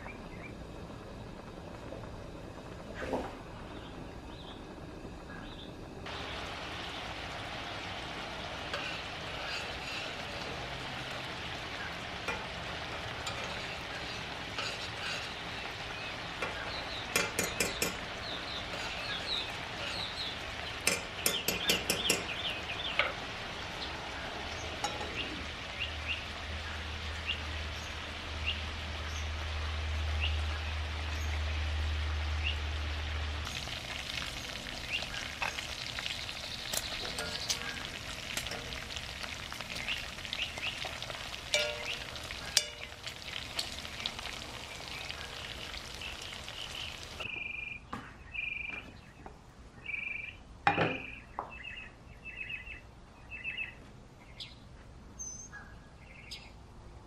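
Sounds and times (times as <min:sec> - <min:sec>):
sausage sizzling in skillet: 0:06.0 - 0:47.3
metal utensil scraping pan: 0:08.6 - 0:10.6, 0:12.2 - 0:22.4, 0:36.8 - 0:39.6, 0:41.5 - 0:43.0.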